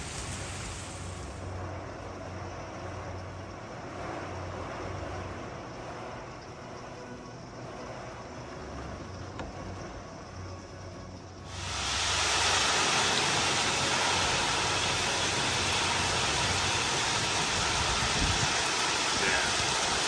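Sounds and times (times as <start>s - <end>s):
heavy rain: 0.0s - 1.5s, 11.5s - 20.0s
strong wind: 11.5s - 20.0s.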